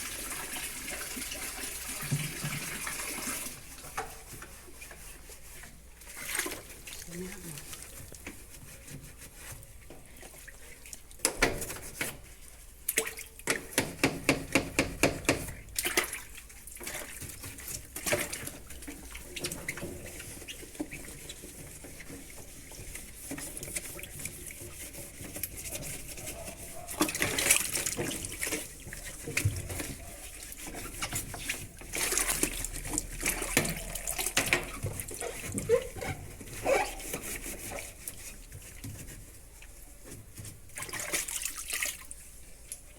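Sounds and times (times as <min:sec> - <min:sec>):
water splashing: 0:00.0 - 0:08.2, 0:15.6 - 0:21.6, 0:25.4 - 0:35.9, 0:40.7 - 0:42.9
running water: 0:00.0 - 0:42.9
sponge squeaking strokes: 0:00.4 - 0:13.4, 0:15.0 - 0:42.9.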